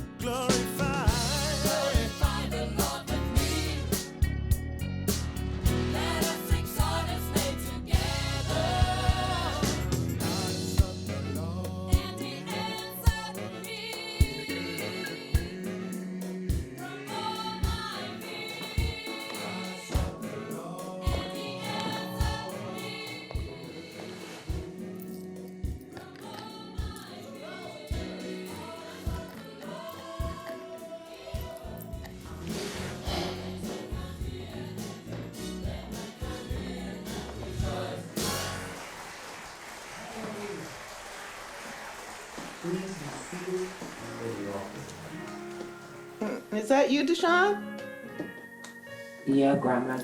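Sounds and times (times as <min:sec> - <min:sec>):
low bass line: 0:00.0 - 0:12.2
gospel choir singing: 0:00.0 - 0:40.6, 0:41.4 - 0:47.3
sharp percussive hits: 0:38.2 - 0:38.9.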